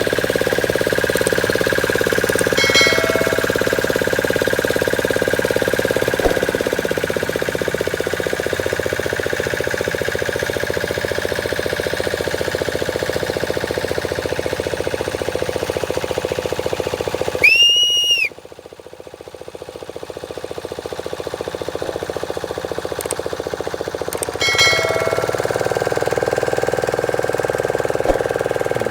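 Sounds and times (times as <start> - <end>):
boat engine chugging: 0.0 - 9.8, 24.4 - 28.9.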